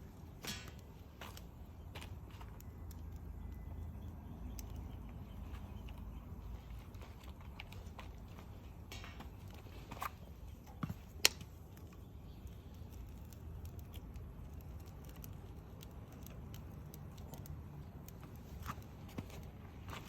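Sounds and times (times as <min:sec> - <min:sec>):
bonfire crackling and popping: 0:00.1 - 0:20.0.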